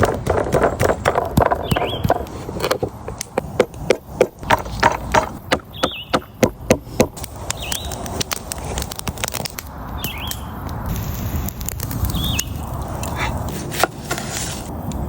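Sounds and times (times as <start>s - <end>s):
sharp knocks: 0.0s - 7.2s
bird whistled call: 5.7s - 6.1s, 10.0s - 10.5s.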